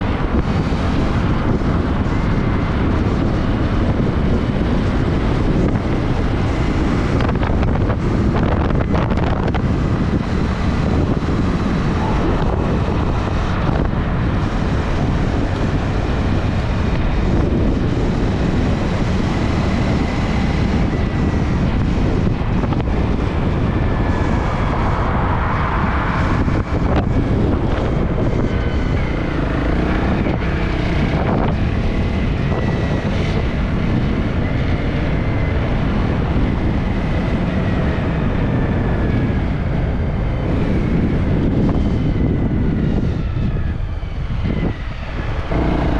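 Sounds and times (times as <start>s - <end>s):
moving vehicle running noise: 0.0s - 45.9s
wind buffeting microphone: 0.0s - 45.9s.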